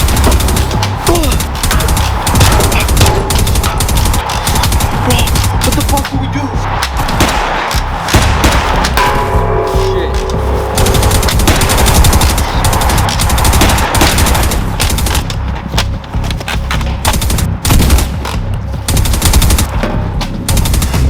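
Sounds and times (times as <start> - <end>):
rapid automatic gunfire: 0.0 - 6.1, 10.8 - 15.2, 18.9 - 19.7, 20.5 - 21.0.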